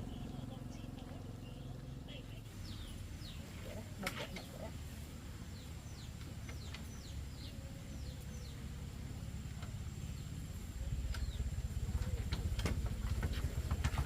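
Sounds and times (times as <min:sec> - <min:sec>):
birds chirping: 0:00.0 - 0:14.0
low rumble: 0:04.7 - 0:14.0.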